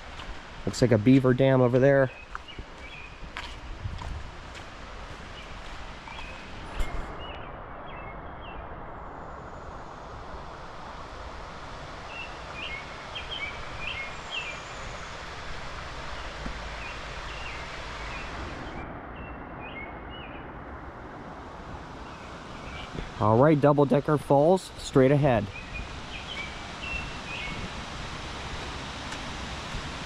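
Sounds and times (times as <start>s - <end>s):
songbirds chirping: 0.0s - 9.7s, 11.6s - 20.6s, 21.4s - 30.0s
woodland background hiss: 0.0s - 18.8s, 21.3s - 30.0s.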